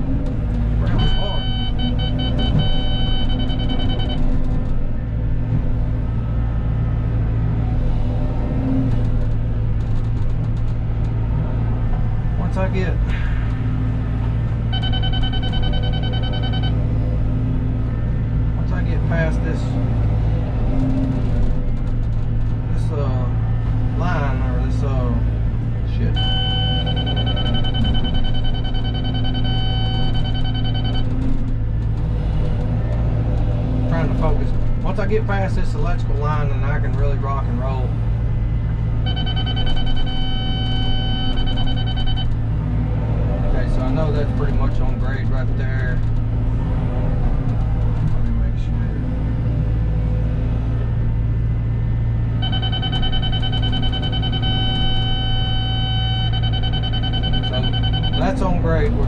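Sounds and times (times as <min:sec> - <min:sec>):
excavator diesel engine running: 0:00.0 - 0:59.0
high electronic beeper tone: 0:00.8 - 0:04.3, 0:39.0 - 0:42.3, 0:52.4 - 0:58.9.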